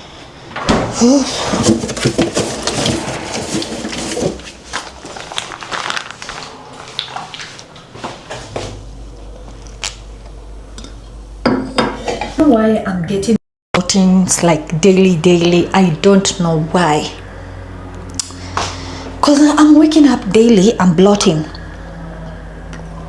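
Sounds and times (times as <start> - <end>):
low steady hum: 7.7 - 23.0
dishes and utensils clattering: 11.5 - 12.4.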